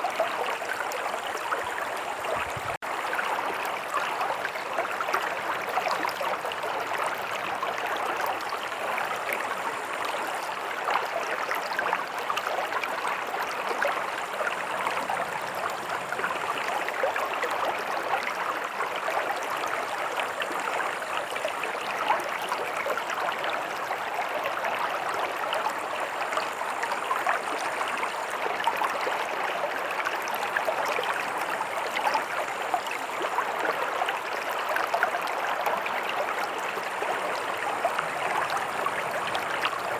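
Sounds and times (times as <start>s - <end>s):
stream water rushing over rocks: 0.0s - 39.9s.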